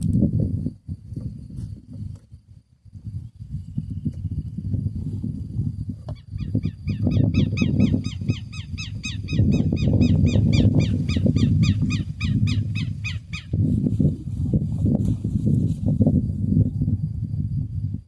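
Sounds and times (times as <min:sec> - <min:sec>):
low rumble with crackles: 0:00.0 - 0:08.5, 0:09.6 - 0:18.0
bird calling sharp repeated notes: 0:06.4 - 0:13.5.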